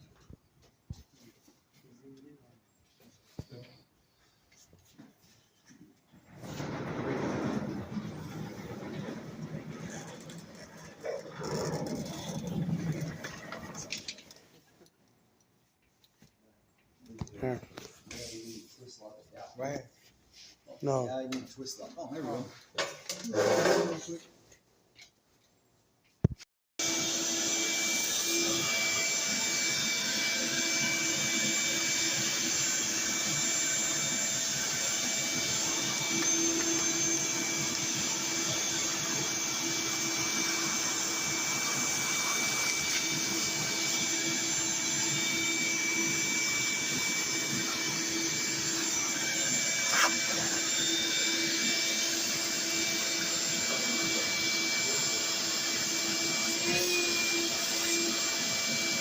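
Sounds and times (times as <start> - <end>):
vacuum cleaner running: 6.3 - 14.3, 26.8 - 59.0.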